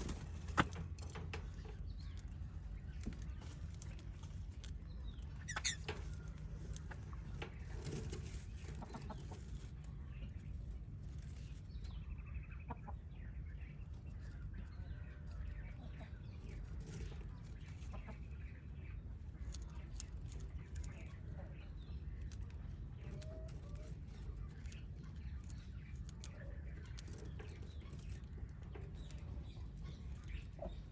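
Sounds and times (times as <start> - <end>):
birds chirping and clucking: 0.0 - 30.9
steady low hum: 0.0 - 30.9
bird trill: 5.0 - 6.2.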